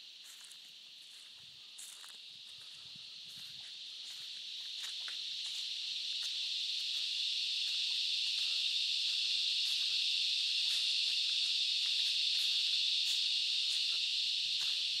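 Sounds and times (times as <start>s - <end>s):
cicadas shrilling: 0.0s - 15.0s.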